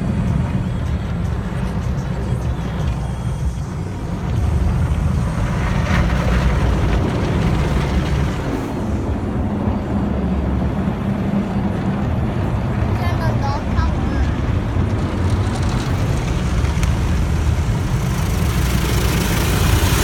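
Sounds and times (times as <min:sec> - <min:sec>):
car wash low rumble: 0:00.0 - 0:20.0
rushing wash of water: 0:03.8 - 0:11.2, 0:13.7 - 0:20.0.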